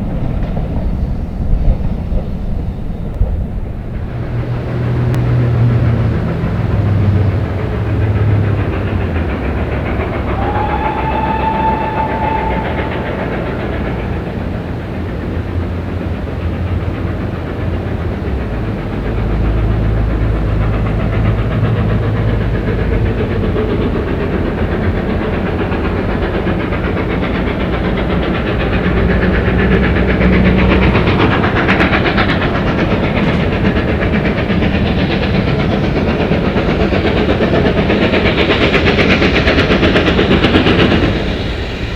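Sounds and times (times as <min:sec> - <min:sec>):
steam train running: 0:00.0 - 0:41.9
train whistle blast: 0:10.0 - 0:14.8.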